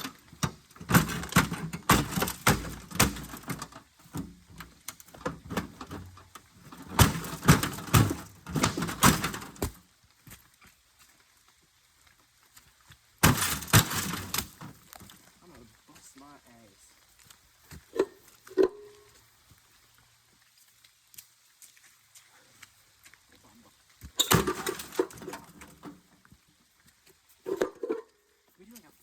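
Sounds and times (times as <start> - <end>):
metal casing being struck: 0.0 - 3.6.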